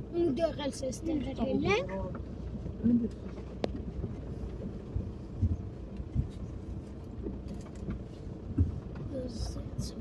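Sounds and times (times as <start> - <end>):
car rumbling over rough ground: 0.0 - 10.0
dull thumps from bumps: 7.9 - 9.0.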